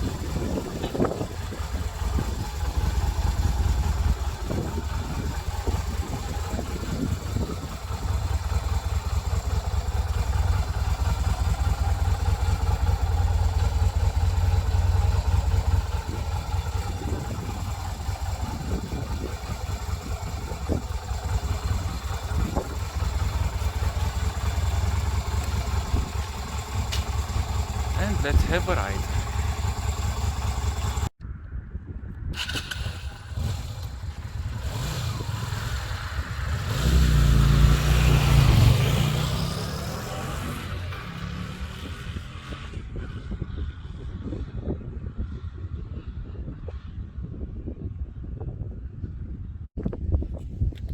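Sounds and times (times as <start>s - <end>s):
motorcycle engine idling: 0.0s - 31.1s, 32.4s - 36.9s.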